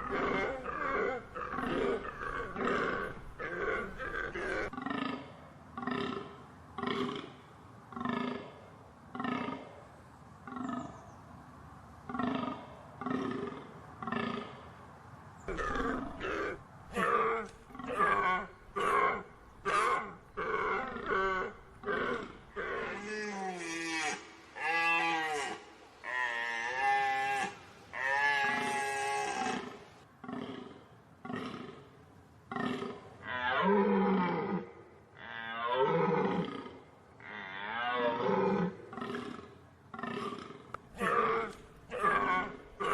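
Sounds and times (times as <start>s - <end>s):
deer calling: 0.0s - 4.8s, 15.5s - 29.8s.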